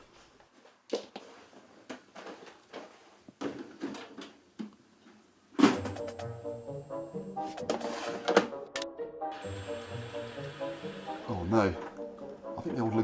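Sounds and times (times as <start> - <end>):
background music: 5.6 - 13.0.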